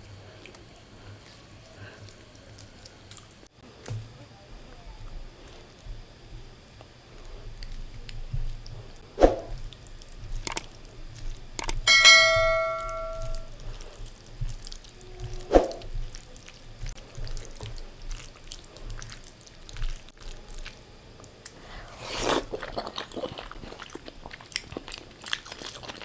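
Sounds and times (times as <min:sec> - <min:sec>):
ringing steel plate strike: 0:11.9 - 0:13.5
steel tableware clinking: 0:11.9 - 0:13.5.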